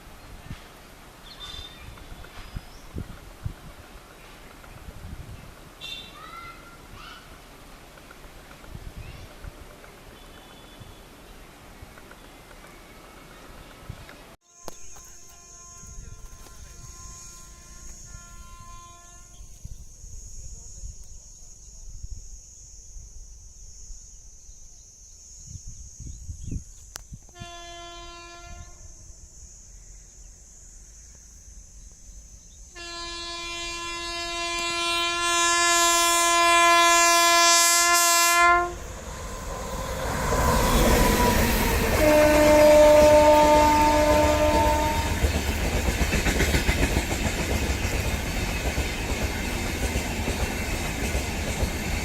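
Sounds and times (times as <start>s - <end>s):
train horn blasts: 5.8s - 6.2s, 14.4s - 19.6s, 27.3s - 29.0s, 32.8s - 45.4s
train rushing past: 32.9s - 52.0s.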